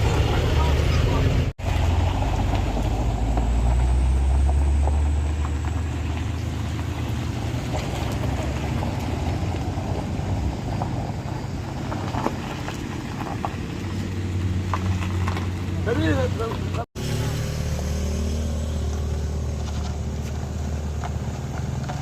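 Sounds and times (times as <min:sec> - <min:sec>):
truck diesel engine rumbling: 0:00.0 - 0:22.0.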